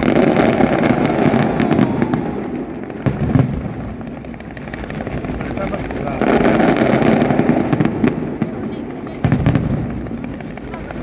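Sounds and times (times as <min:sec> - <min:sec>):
fireworks crackling: 0:00.0 - 0:11.0
heavy firework bangs: 0:00.0 - 0:11.0.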